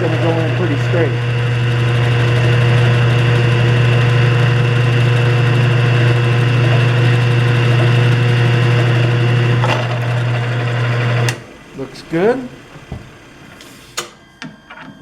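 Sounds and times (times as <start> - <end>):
drill bit cutting metal: 0.0 - 11.4
drill press motor humming: 0.0 - 15.0.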